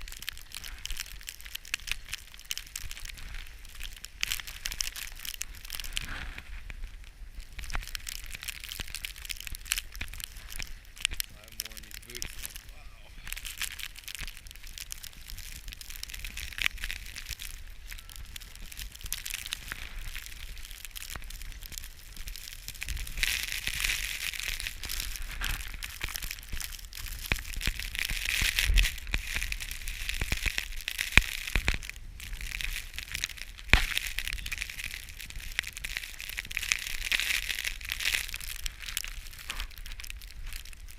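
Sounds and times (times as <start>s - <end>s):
footsteps crunching through snow: 2.9s - 7.6s.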